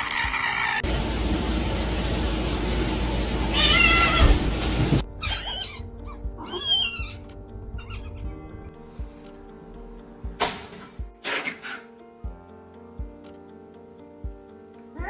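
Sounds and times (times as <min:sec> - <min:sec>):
cat meowing: 0:03.5 - 0:04.4, 0:05.2 - 0:08.3
background music: 0:05.0 - 0:15.0.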